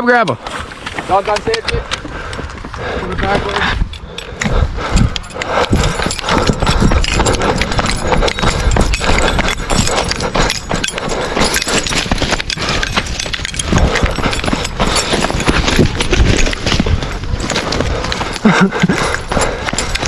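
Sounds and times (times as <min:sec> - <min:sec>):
hurried footsteps: 0:00.2 - 0:20.0
gear rustling: 0:00.5 - 0:20.0.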